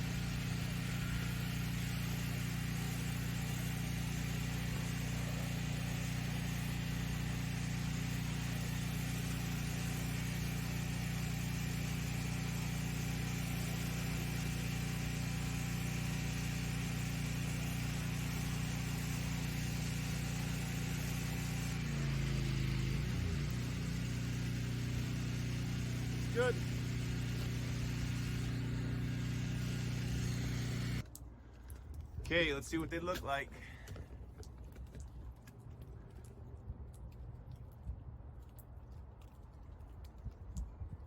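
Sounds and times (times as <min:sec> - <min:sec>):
hissing water spray: 0:00.0 - 0:31.0
pressure washer engine running: 0:00.0 - 0:31.0.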